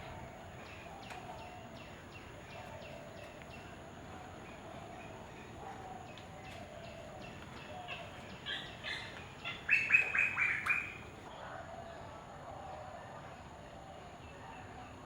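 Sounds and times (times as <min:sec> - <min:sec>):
faint background chirping: 0:00.0 - 0:15.0
bird calling loudly: 0:08.5 - 0:11.0.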